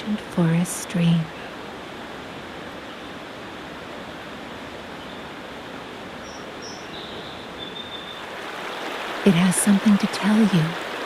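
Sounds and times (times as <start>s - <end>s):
stream flowing: 0.0s - 11.0s
faint bird chirps: 6.2s - 8.3s.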